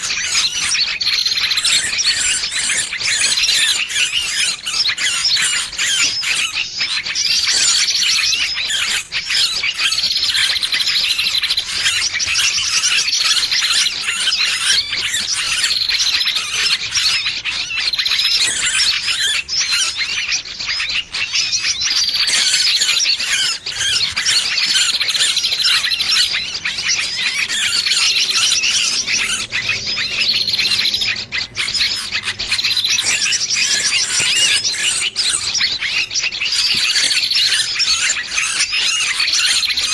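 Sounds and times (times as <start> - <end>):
bird distress calls: 0.0 - 39.9.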